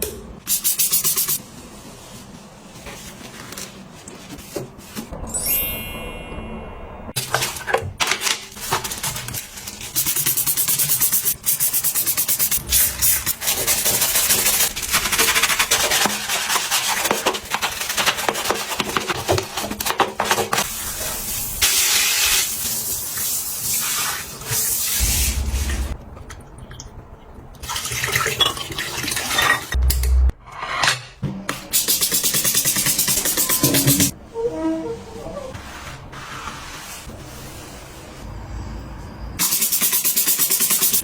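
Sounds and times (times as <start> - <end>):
scrubbing: 11.4 - 21.3.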